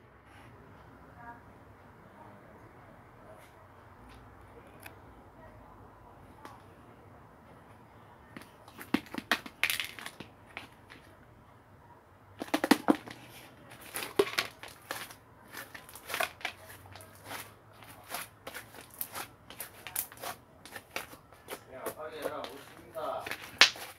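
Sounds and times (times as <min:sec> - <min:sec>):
crackling and crinkling handling noise: 0:12.4 - 0:23.9.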